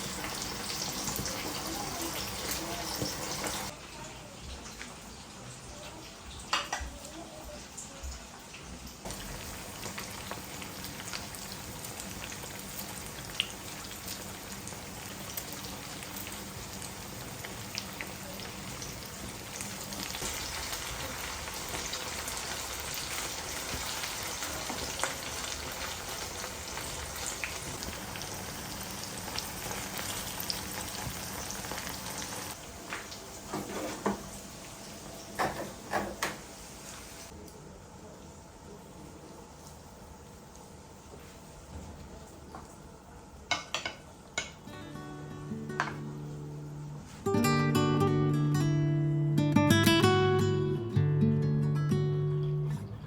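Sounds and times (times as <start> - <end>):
food sizzling in hot oil: 0.0 - 37.3.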